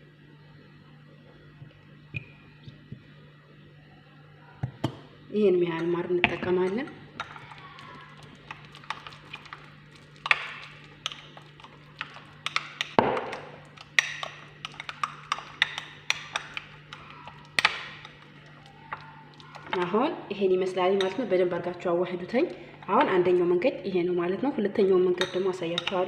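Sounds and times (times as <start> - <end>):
spoon tapping against bowl: 25.2 - 26.0.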